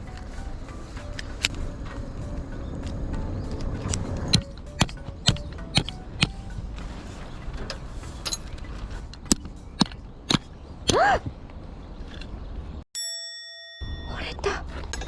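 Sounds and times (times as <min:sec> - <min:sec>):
sharp clicks and knocks: 0:02.8 - 0:06.9, 0:07.6 - 0:12.4.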